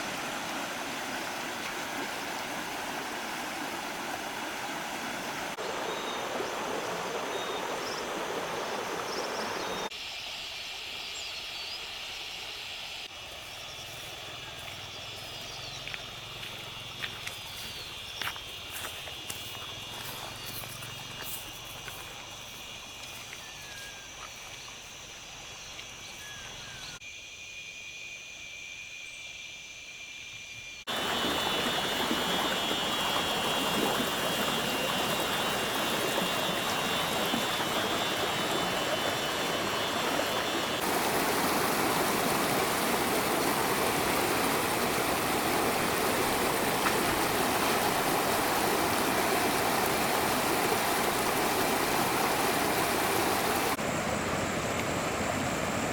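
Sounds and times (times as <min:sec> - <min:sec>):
rushing water: 0:00.0 - 0:10.0, 0:30.9 - 0:55.9
insect drone: 0:00.0 - 0:55.9.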